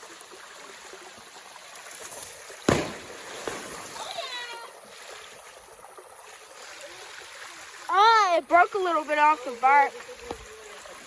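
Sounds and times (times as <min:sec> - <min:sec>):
log crashing: 0:02.7 - 0:04.0
waterfall rushing: 0:07.9 - 0:10.8.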